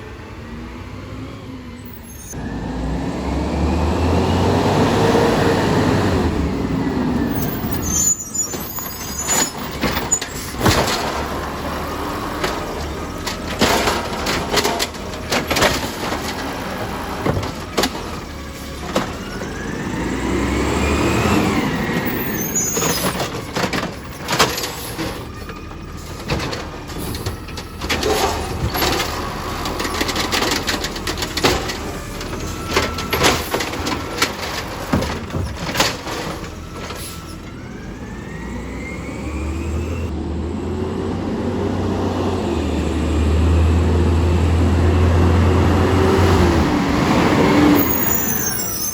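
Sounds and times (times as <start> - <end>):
diesel engine revving: 0.0 - 48.9
bins clanking and banging: 6.2 - 37.8, 45.9 - 48.9.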